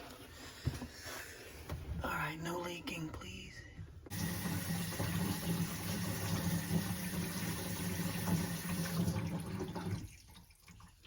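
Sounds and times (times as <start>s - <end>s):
water running through a sink: 4.1s - 11.0s.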